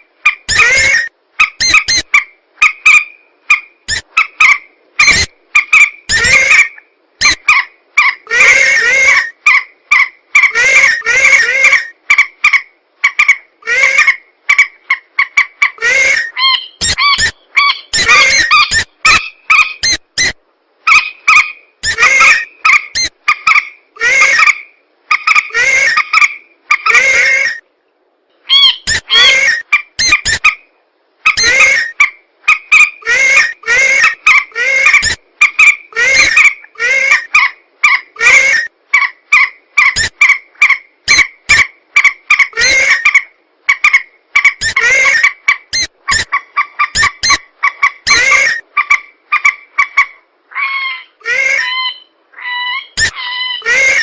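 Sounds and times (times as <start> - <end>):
harsh repeated bird calls: 0.2 - 27.6, 28.4 - 54.0.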